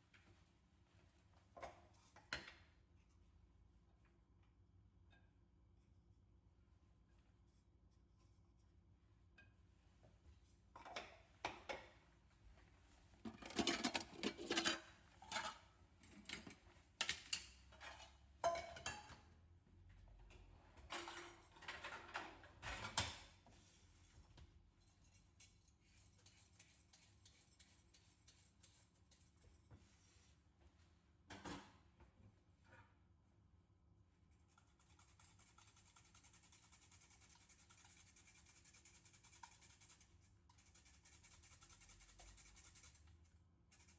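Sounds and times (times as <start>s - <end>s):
utensils and dishes clinking: 13.3s - 19.2s.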